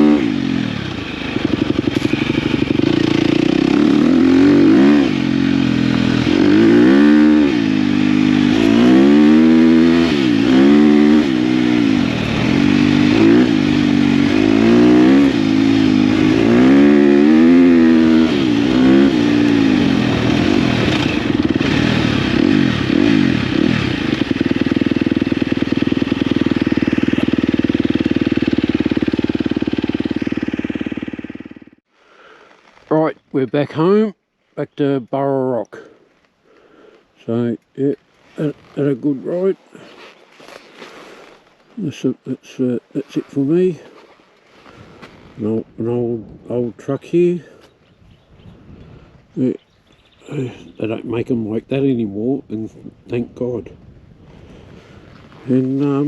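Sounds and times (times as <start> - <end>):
dirt bike engine revving: 0.0 - 31.8, 54.8 - 56.0.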